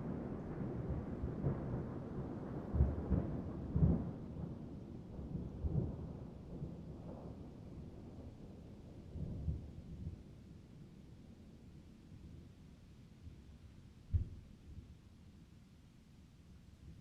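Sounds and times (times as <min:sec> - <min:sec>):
steady rain: 0:00.0 - 0:14.2.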